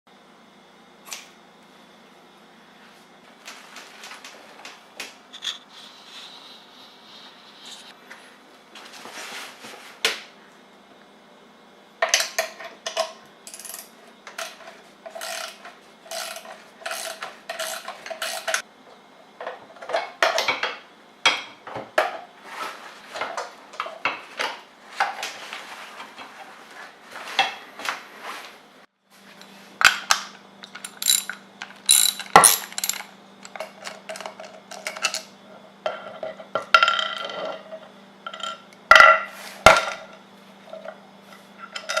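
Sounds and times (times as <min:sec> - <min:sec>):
small metal parts clanking: 0:13.5 - 0:18.6, 0:30.6 - 0:35.3.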